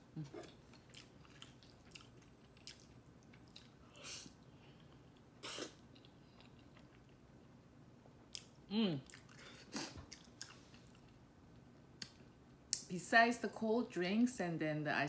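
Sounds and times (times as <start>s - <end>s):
person chewing food: 0.1s - 7.3s, 8.2s - 11.2s.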